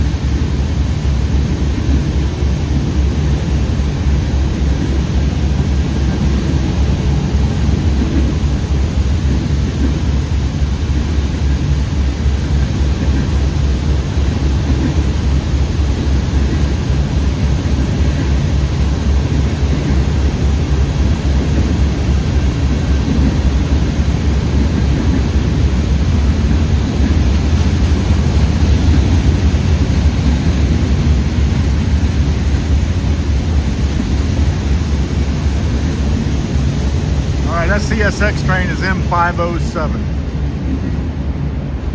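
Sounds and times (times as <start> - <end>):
freight train wheels rumbling: 0.0 - 41.9.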